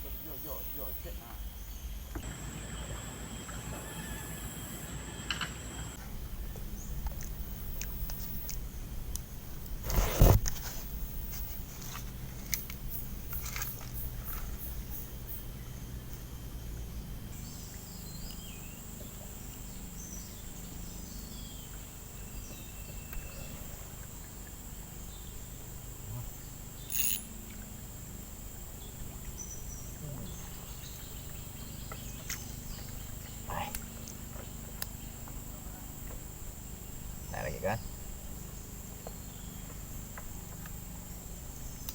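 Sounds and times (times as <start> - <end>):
high-pitched insect drone: 0.0 - 6.9, 12.4 - 41.9
loud rustle or knock: 9.8 - 12.1.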